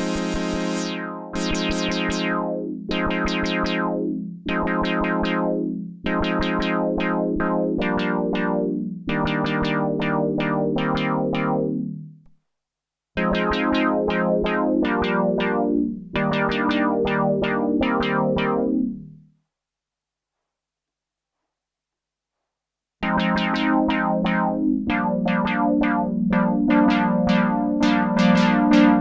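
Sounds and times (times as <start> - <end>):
synthesizer playing chords: 0.0 - 2.5, 23.0 - 29.0.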